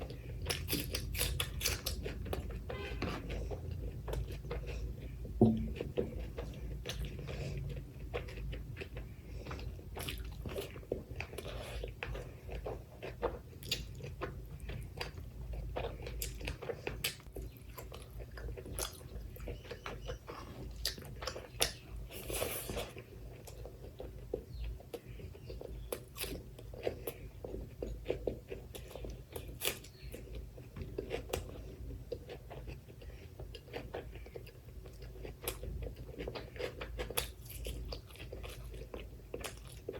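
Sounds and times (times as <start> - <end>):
close chewing with mouth clicks: 0.0 - 39.9
food crunching: 0.0 - 39.9.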